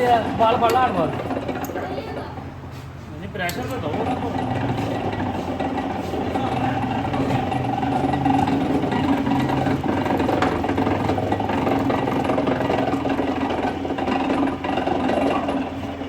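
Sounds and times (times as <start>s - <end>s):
woodworking machine motor chattering: 0.0s - 16.0s.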